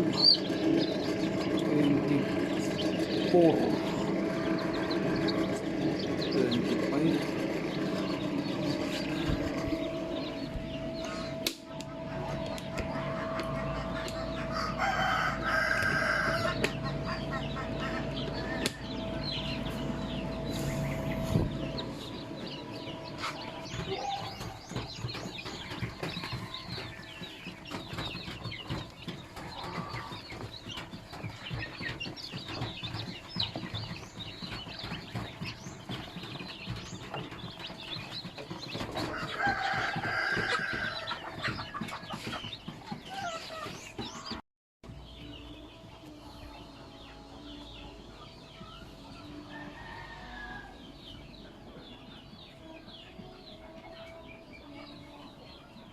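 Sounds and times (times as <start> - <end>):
low steady hum: 0.0 - 26.8
chickens clucking and chirping: 0.0 - 55.9
rooster crowing: 12.0 - 16.9, 39.0 - 41.2, 49.4 - 50.9.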